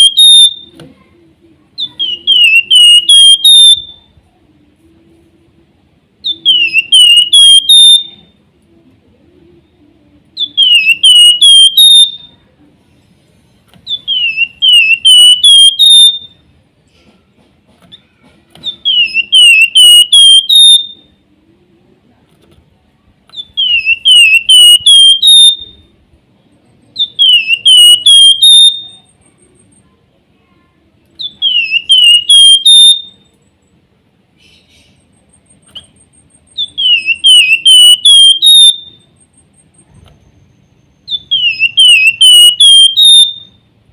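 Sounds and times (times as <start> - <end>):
bird singing whistled song: 0.0 - 0.8, 1.8 - 4.2, 6.2 - 8.4, 10.4 - 12.4, 13.8 - 16.4, 18.6 - 21.2, 23.3 - 25.9, 26.9 - 29.2, 31.2 - 33.3, 35.7 - 43.7.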